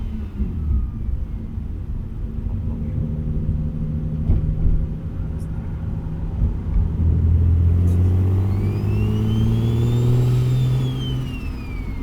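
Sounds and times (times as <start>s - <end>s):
car engine under throttle: 0.0s - 12.0s
turbocharger whine: 6.8s - 12.0s.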